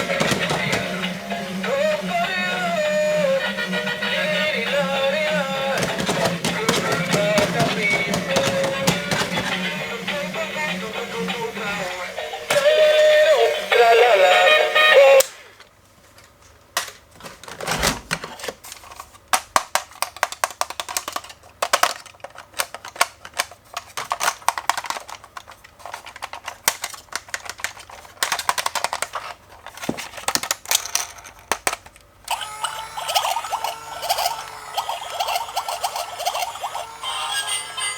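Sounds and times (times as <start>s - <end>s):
plastic packaging crackling: 4.2s - 10.1s.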